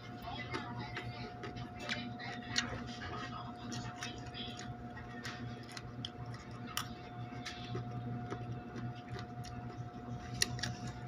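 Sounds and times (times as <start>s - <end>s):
crunchy chewing: 0.0s - 11.0s
steady low hum: 0.0s - 11.0s.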